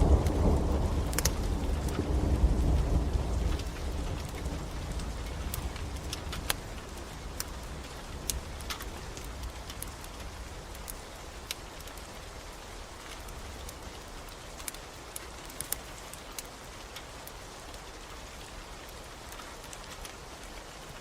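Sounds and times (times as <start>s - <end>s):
thunder rumble: 0.0s - 10.8s
steady rain hiss: 0.0s - 21.0s
wood fire crackling: 0.0s - 21.0s.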